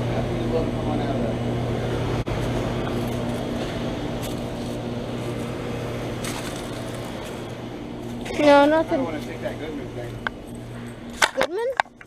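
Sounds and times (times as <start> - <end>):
compressor drone: 0.0 - 12.0
fan rushing: 0.0 - 12.0.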